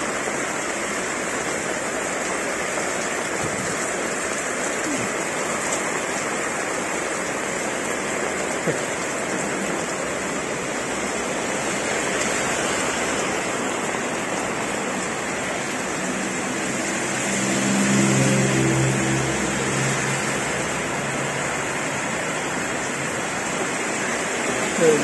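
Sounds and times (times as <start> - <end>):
heavy rain on road and roofs: 0.0 - 25.0
car driving past on wet road: 9.8 - 25.0.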